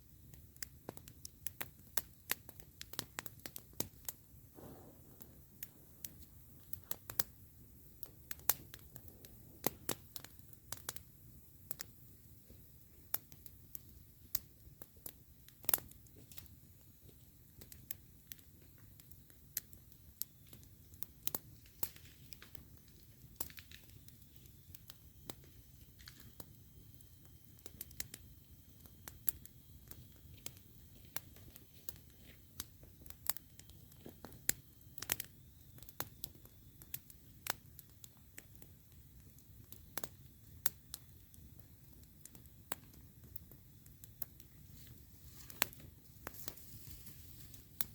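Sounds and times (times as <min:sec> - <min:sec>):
campfire crackling: 0:00.0 - 0:47.9
low steady rumble: 0:04.2 - 0:09.7.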